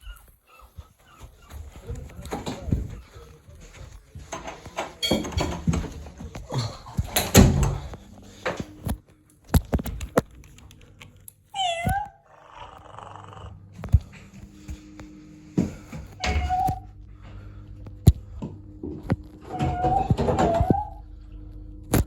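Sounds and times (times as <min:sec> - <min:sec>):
cat meowing: 0:11.6 - 0:13.5.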